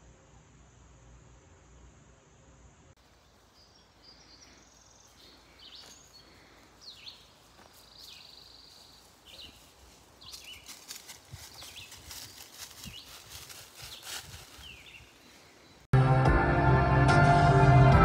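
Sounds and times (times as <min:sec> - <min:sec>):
birds chirping and whistling: 0:13.9 - 0:15.9.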